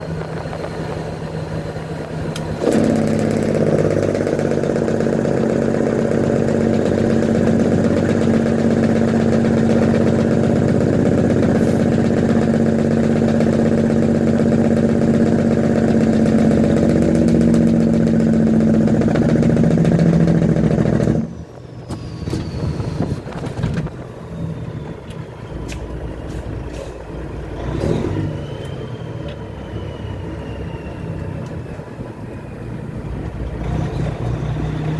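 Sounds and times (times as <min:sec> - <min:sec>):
truck engine running: 0:00.0 - 0:34.9
truck engine brake rattle: 0:00.2 - 0:28.8.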